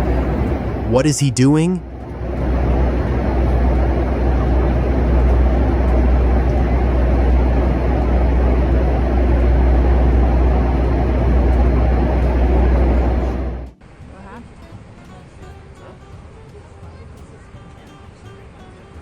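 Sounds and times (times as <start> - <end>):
jet engine roar: 0.0 - 13.8.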